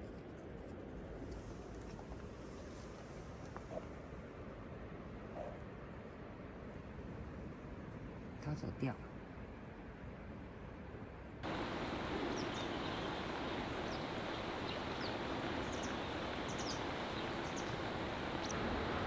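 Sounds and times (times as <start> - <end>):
stream flowing: 11.4 - 19.0
high bird chirps: 11.5 - 18.6.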